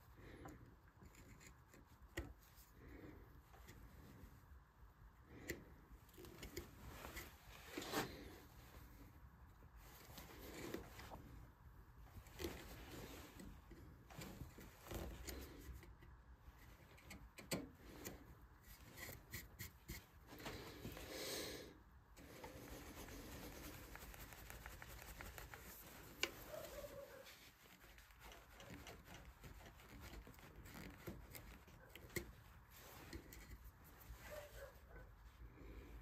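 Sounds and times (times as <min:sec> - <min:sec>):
carving tool scraping wood: 0:22.2 - 0:34.7.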